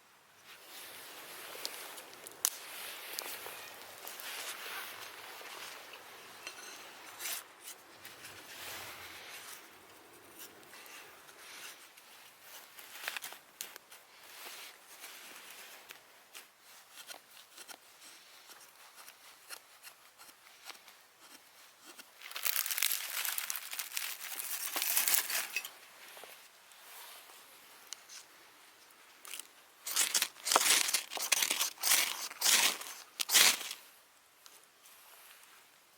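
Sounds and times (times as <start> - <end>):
crinkling and tearing: 22.2 - 25.7, 29.3 - 33.8.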